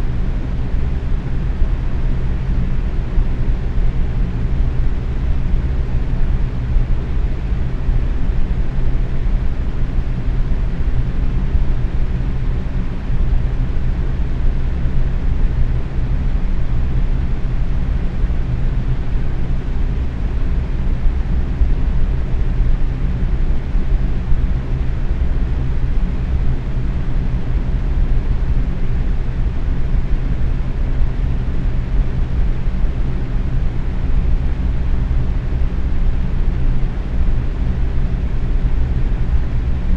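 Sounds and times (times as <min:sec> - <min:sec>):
box fan running: 0:00.0 - 0:39.9.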